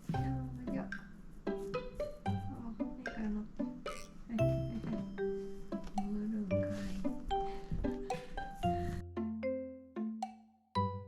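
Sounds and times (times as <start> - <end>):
plucked notes: 0.2 - 6.5.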